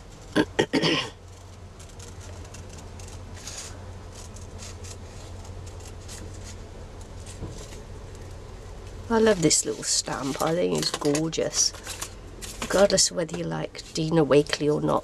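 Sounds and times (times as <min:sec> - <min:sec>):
low steady hum: 0:00.0 - 0:15.0
paper rustling: 0:01.2 - 0:08.3, 0:09.2 - 0:14.6
small crackly ticks: 0:01.3 - 0:06.2.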